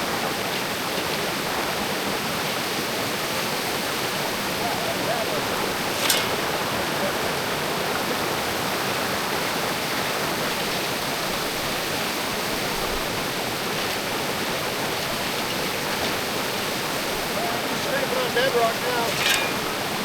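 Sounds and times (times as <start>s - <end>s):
creek water rushing over rocks: 0.0s - 20.0s.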